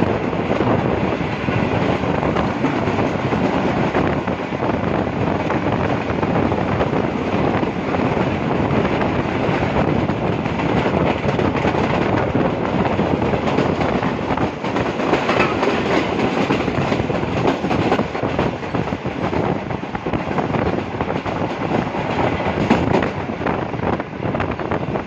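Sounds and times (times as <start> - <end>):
train rushing and rumbling: 0.0 - 25.0
wheels clattering over rail joints: 13.2 - 18.7.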